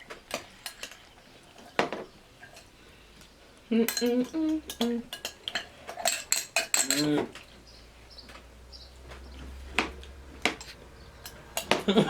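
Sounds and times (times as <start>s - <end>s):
cutlery clinking against dishes: 0.3s - 2.8s, 3.8s - 7.5s, 9.8s - 12.0s
person making vocal sounds: 3.7s - 5.1s.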